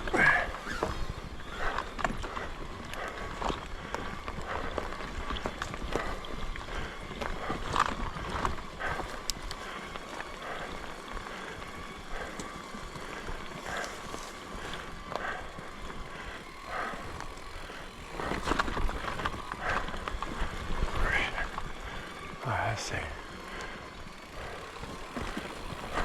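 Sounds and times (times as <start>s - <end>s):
bike rattling: 0.0s - 26.0s
bike tyres crunching over dirt: 0.0s - 26.0s.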